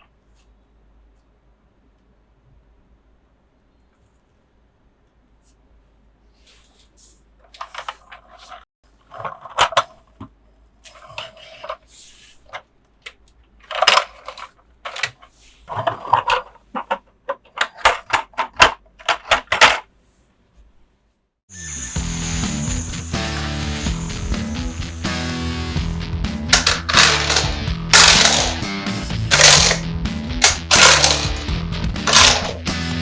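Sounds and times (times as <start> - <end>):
plastic toy pieces clattering: 13.6 - 19.9, 26.5 - 28.7, 29.3 - 29.8, 30.4 - 32.6.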